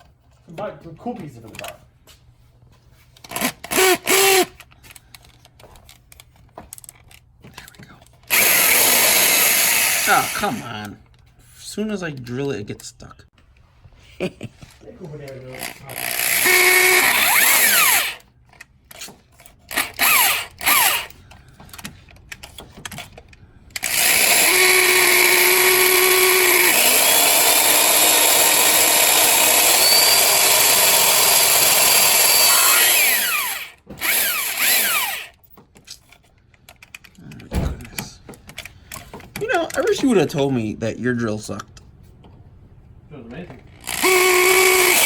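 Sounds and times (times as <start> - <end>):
power drill boring into metal: 3.3 - 4.6, 8.3 - 10.8, 15.5 - 18.2, 19.7 - 21.2, 23.8 - 35.4, 43.8 - 45.0.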